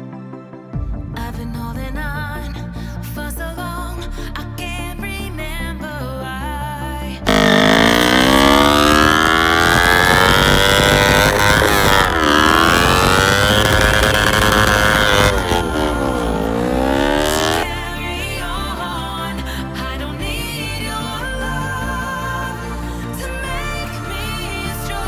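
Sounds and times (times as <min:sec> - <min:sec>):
motorcycle engine revving hard: 0:07.3 - 0:18.0.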